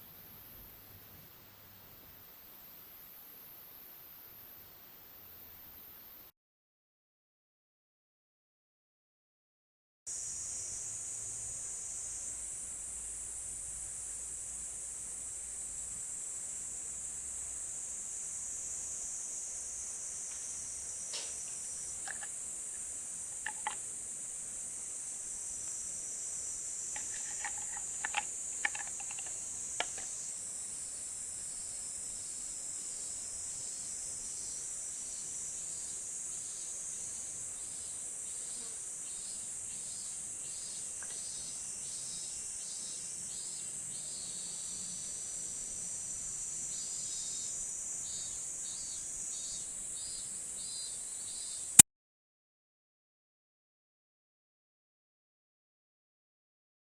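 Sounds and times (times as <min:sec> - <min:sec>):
high-pitched insect chorus: 0:00.0 - 0:06.3, 0:10.1 - 0:51.8
insect pulsing call: 0:10.1 - 0:51.8
sharp clicks and ticks: 0:23.4 - 0:23.8, 0:27.0 - 0:30.1.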